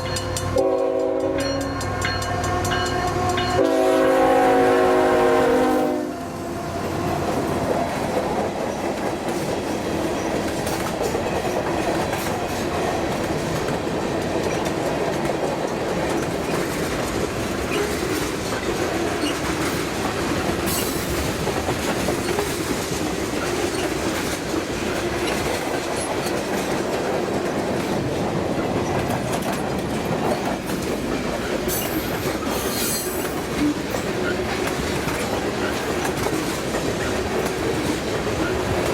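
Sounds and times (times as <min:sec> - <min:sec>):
freight train clickety-clack: 0:00.0 - 0:38.9
locomotive horn: 0:00.4 - 0:07.6
high wheel squeals: 0:31.7 - 0:33.4.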